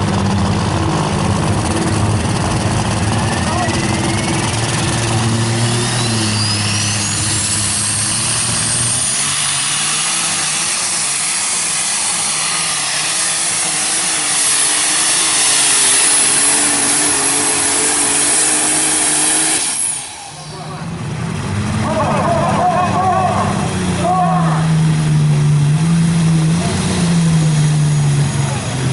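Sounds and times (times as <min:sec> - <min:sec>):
tractor engine running loud: 0:00.0 - 0:28.9
turbo whistle: 0:05.7 - 0:07.7.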